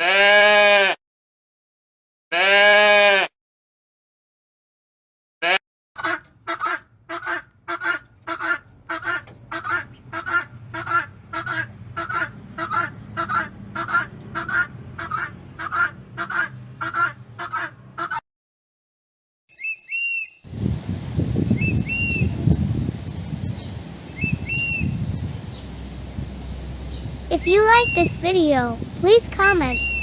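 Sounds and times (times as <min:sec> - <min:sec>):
bird honking calls: 0:06.0 - 0:18.2, 0:27.3 - 0:28.2, 0:29.4 - 0:30.0.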